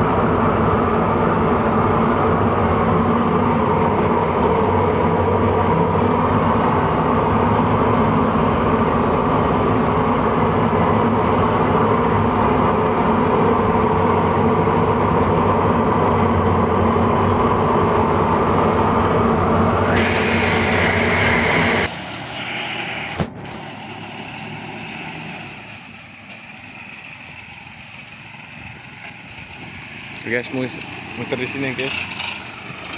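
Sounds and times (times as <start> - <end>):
car engine running under load: 0.0 - 32.9
loud hissing: 19.8 - 32.9.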